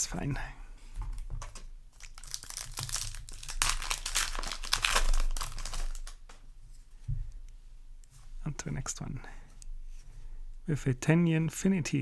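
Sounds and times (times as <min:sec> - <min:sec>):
foil wrapper crinkling and tearing: 0:02.0 - 0:06.4.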